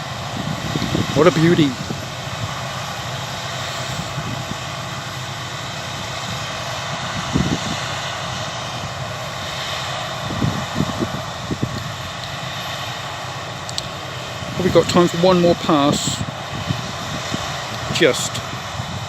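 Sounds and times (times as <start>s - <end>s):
combine harvester drone: 0.0s - 19.0s.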